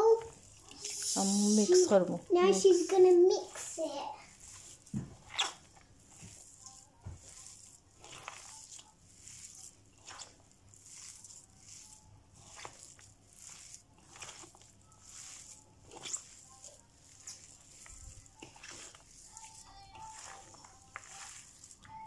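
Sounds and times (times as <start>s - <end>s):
soft mixing strokes: 0.0s - 22.0s.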